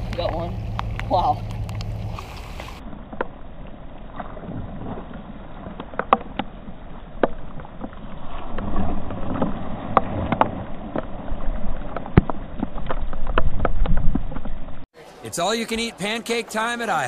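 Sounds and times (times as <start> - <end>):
raindrops ticking on camera: 0.0 - 3.3
wind rumbling on microphone: 0.0 - 14.9.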